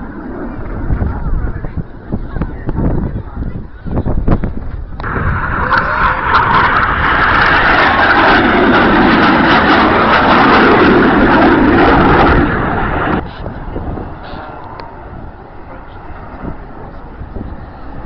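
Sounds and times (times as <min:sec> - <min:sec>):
deeper rumble: 0:00.0 - 0:18.0
jet engine flypast: 0:00.0 - 0:18.0.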